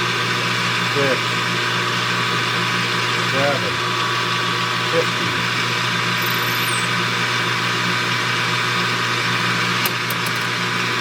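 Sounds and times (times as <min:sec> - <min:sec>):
metal lathe humming: 0:01.9 - 0:07.3.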